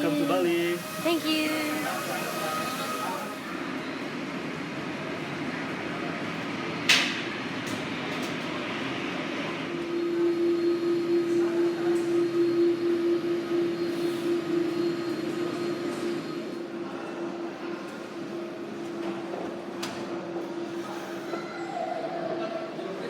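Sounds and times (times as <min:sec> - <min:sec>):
low pulsing drone: 0:00.0 - 0:03.8
mechanical hum: 0:00.0 - 0:23.0.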